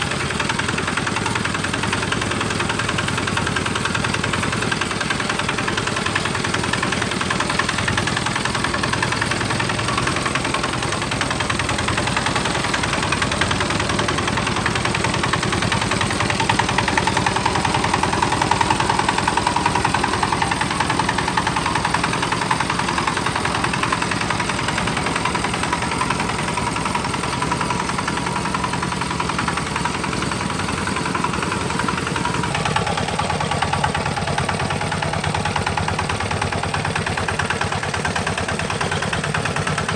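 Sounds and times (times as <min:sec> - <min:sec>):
tractor engine chugging: 0:00.0 - 0:39.9.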